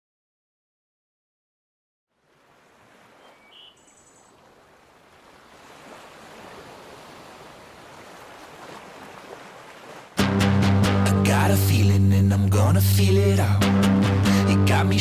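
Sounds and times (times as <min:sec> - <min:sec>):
sea waves rushing: 0:02.2 - 0:10.3
faint high chirps: 0:03.2 - 0:04.4.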